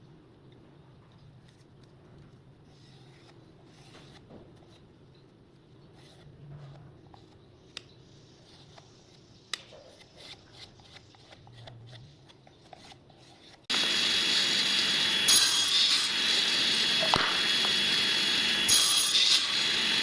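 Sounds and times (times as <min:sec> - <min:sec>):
power tool running with whine: 0:13.7 - 0:20.0.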